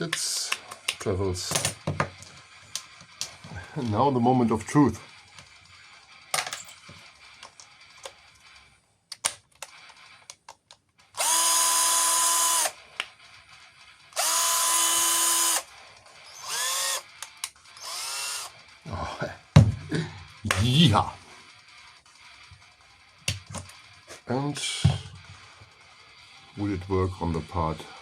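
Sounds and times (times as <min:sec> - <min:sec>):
cordless drill whining: 0:11.1 - 0:13.0, 0:14.1 - 0:18.7.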